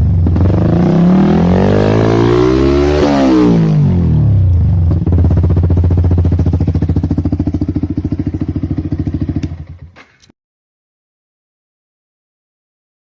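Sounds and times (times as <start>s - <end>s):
motorcycle engine idling: 4.3s - 10.3s
engine stopping clicks: 9.2s - 10.3s.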